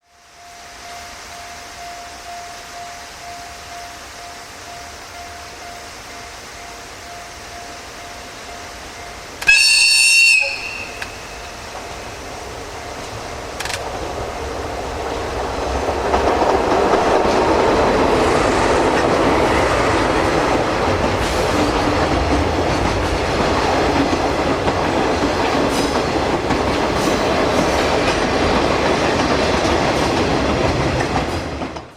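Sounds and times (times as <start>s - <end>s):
freight train rumbling past: 0.1s - 31.9s
wheels clicking over rail joints: 9.3s - 31.9s.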